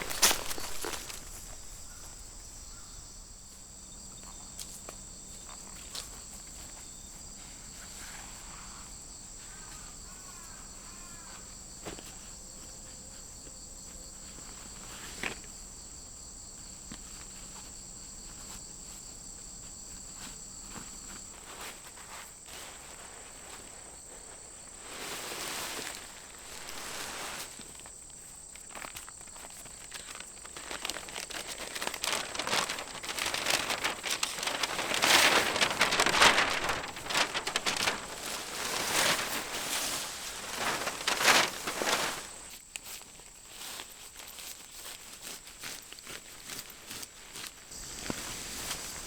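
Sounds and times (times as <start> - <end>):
rustling: 0.0 - 2.5, 20.2 - 49.0
insects chirring: 0.0 - 49.0.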